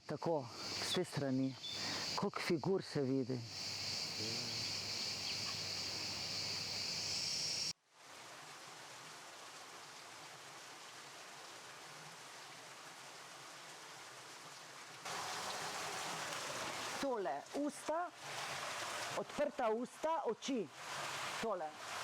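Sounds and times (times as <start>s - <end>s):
faint outdoor hiss: 0.0s - 22.0s
insects shrilling: 0.5s - 7.7s.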